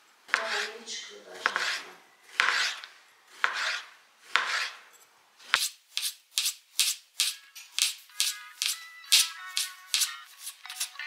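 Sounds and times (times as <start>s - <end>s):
knife cutting onion on board: 0.3s - 0.7s, 1.4s - 11.0s
music with shaker beat: 7.2s - 11.0s.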